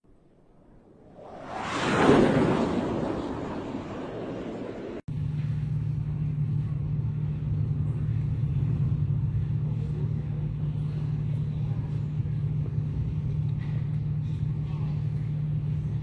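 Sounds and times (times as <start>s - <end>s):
vehicle droning in motion: 0.8s - 16.0s.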